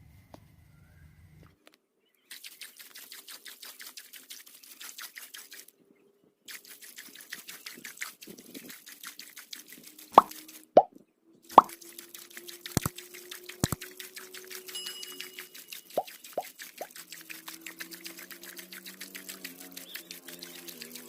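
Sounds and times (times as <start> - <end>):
rapid scraping strokes: 11.5 - 21.0.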